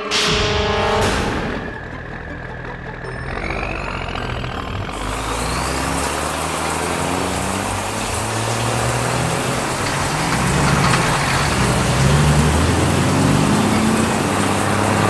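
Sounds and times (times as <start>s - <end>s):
vehicle engine hum: 0.6s - 15.0s
rain-like hiss: 5.0s - 15.0s.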